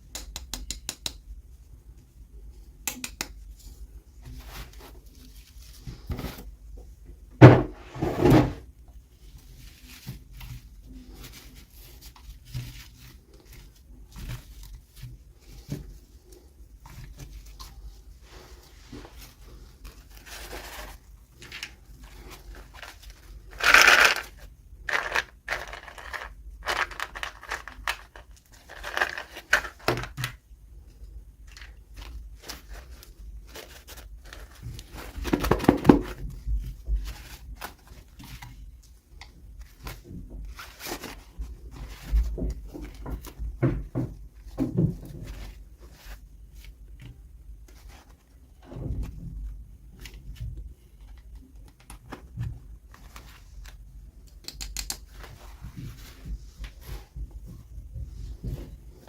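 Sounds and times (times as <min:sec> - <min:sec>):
packaging crinkling: 0:20.0 - 0:30.4.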